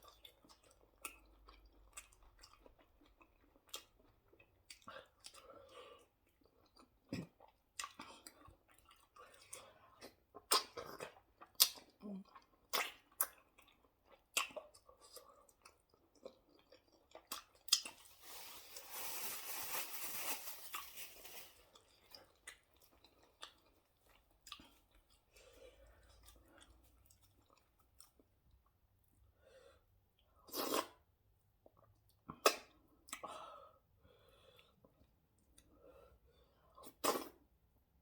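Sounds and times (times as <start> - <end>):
wet eating clicks and chewing: 6.4 - 17.9.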